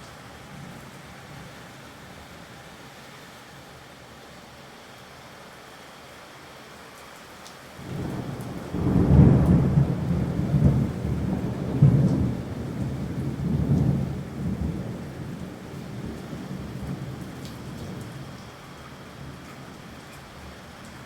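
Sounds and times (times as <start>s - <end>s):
steady rain: 0.0s - 21.0s
thunder rolling: 7.8s - 18.2s.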